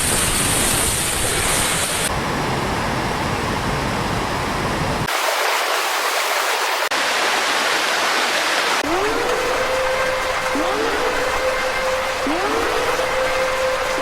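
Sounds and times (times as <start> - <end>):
rushing floodwater: 4.0 - 14.0.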